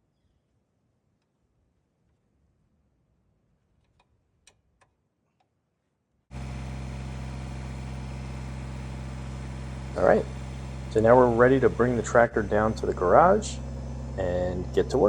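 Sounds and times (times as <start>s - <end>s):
diesel tractor engine running: 6.3s - 15.0s.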